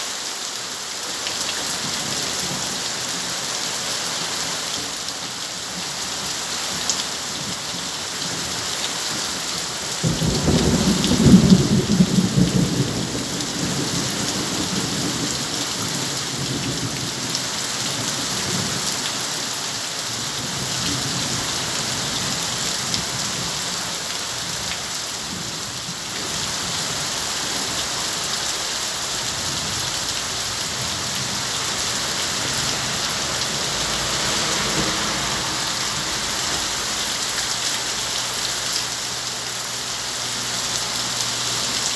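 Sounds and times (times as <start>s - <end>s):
heavy rain: 0.0s - 41.9s
thunder rumbling: 10.0s - 15.5s, 27.0s - 39.1s.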